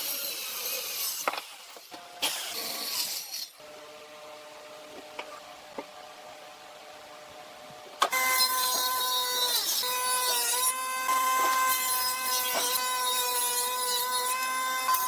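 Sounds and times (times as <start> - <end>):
power tool motor whine: 8.1 - 15.0.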